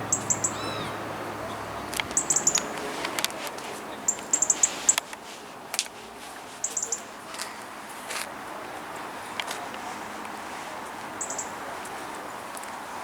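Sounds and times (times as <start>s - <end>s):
bird chirping: 0.0s - 3.0s, 3.9s - 5.0s, 6.6s - 7.1s, 11.2s - 11.6s.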